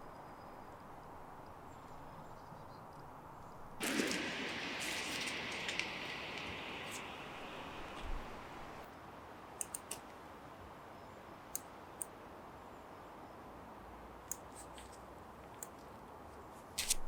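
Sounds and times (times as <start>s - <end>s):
faint hiss: 3.8s - 14.8s
sharp clicks: 9.6s - 10.0s.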